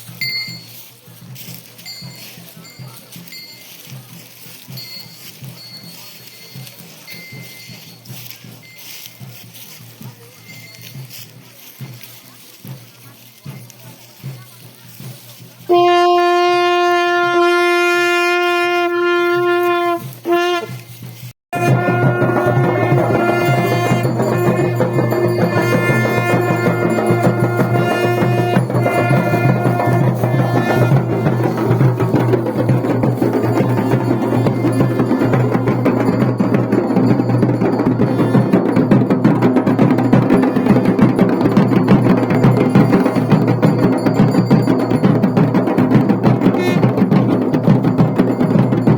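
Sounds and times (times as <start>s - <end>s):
music with fast drumming: 0.0s - 48.9s
horn blasts: 15.7s - 20.9s, 21.6s - 32.1s, 46.6s - 47.1s.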